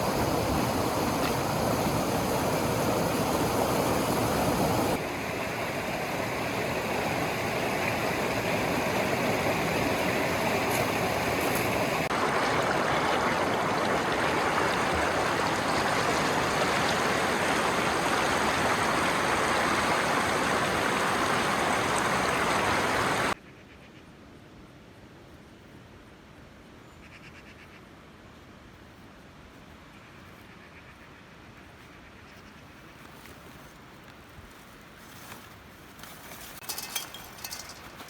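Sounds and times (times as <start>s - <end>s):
running water rushing: 0.0s - 23.4s, 36.6s - 38.0s.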